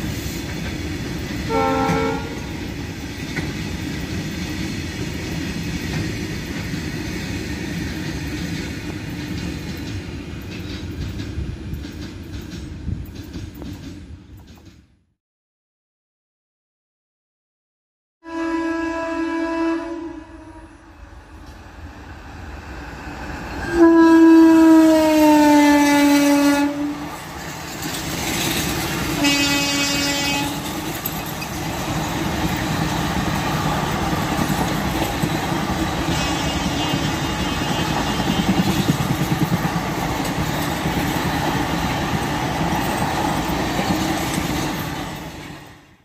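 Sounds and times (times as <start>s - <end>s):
passenger coaches rumbling by: 0.0s - 14.8s, 20.2s - 46.0s
train horn blasts: 1.5s - 2.6s, 18.2s - 20.9s, 23.6s - 27.1s, 29.2s - 30.7s, 36.0s - 38.7s.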